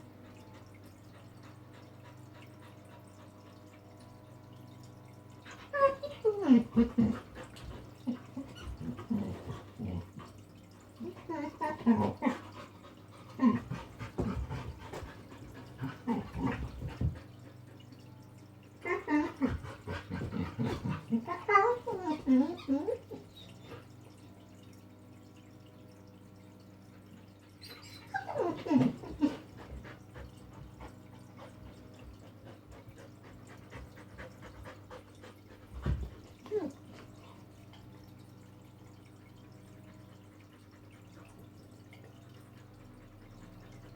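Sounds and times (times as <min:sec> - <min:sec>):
dog whining: 0:20.6 - 0:23.7, 0:27.6 - 0:29.4
dog panting: 0:28.2 - 0:36.6.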